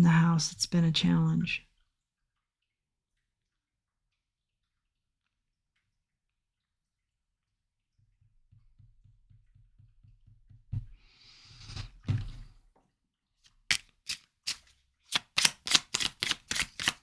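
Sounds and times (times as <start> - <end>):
cards being shuffled: 13.7 - 17.0
quick card slaps: 13.7 - 17.0.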